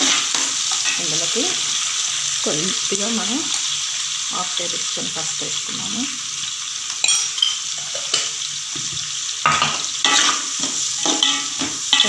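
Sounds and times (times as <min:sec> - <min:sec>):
steel spoon scraping a pan: 0:00.0 - 0:02.3, 0:09.5 - 0:12.0
onions sizzling in hot oil: 0:00.0 - 0:12.0.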